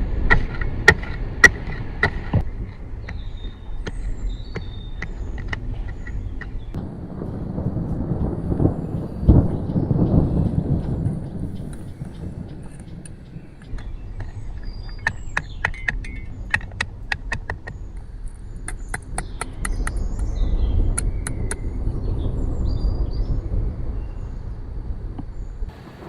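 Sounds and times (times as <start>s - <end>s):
sharp crackles: 0.0s - 23.6s
low steady rumble: 0.0s - 26.0s.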